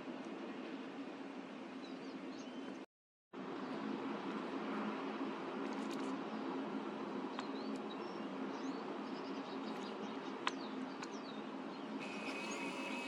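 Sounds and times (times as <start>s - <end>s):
finches chirping: 12.0s - 13.0s.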